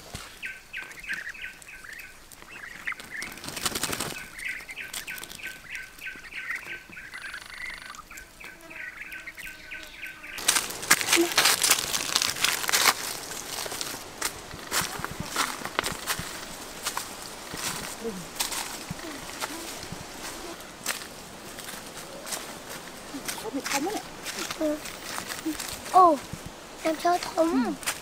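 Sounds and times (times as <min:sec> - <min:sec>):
bird chirping: 0:00.0 - 0:20.8.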